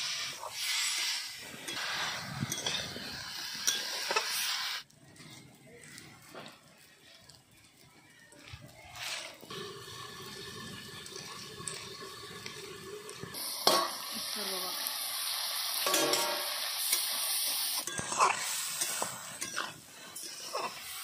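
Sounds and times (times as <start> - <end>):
metal spatula scraping a pan: 0.0 - 4.8, 15.8 - 21.0
food sizzling in a wok: 0.0 - 4.9, 8.7 - 21.0
metal clank: 15.8 - 16.5.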